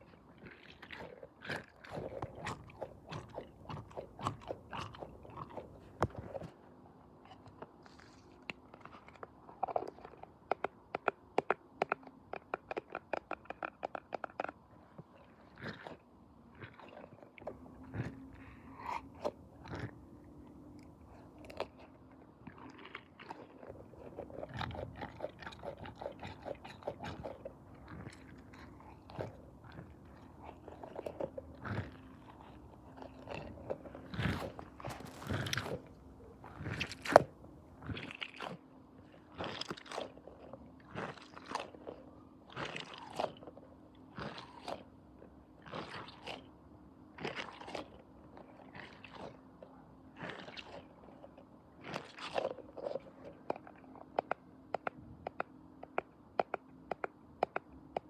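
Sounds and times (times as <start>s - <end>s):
close-up crunching and clicking: 0.4s - 6.5s, 7.3s - 14.6s, 16.6s - 38.6s, 50.2s - 58.0s
faint steady hum: 1.9s - 6.5s, 17.4s - 42.6s.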